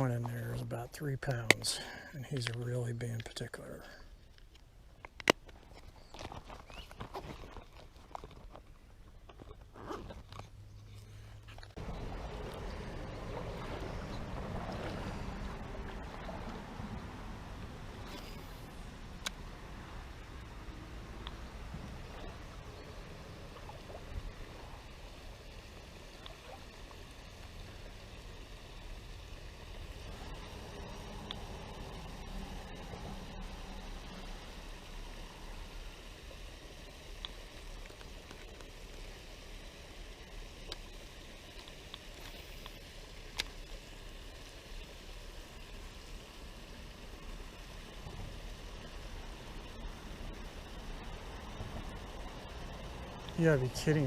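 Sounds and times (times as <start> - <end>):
creek water flowing: 0.0 - 4.2, 10.7 - 54.0
outdoor background rush: 0.0 - 54.0
low rumble: 11.8 - 25.8.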